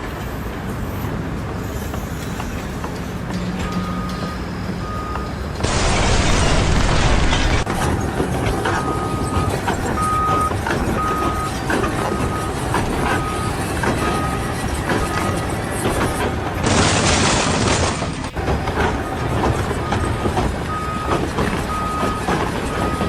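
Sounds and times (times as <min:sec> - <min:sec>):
engine and site noise: 0:00.0 - 0:23.0
reversing alarm beeping: 0:03.6 - 0:07.8, 0:08.6 - 0:17.8, 0:18.4 - 0:23.0
loud rushing noise: 0:05.6 - 0:08.5, 0:16.6 - 0:18.4.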